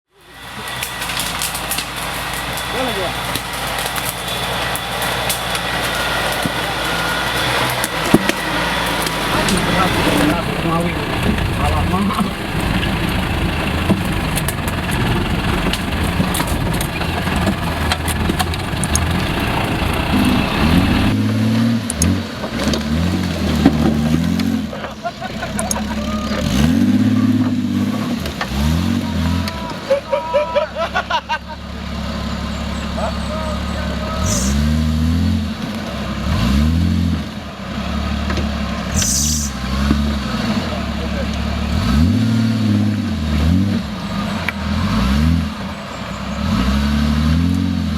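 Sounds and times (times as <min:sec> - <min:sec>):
engine running at low revs: 0:00.1 - 0:47.9
short hiss: 0:39.0 - 0:39.6.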